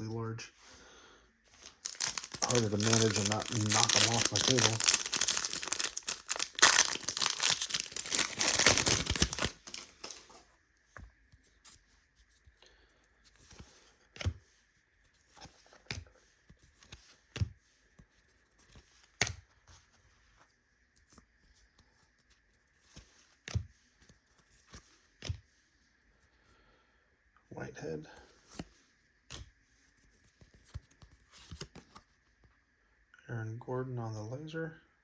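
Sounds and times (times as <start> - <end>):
foil wrapper tearing and crinkling: 1.6 - 10.2.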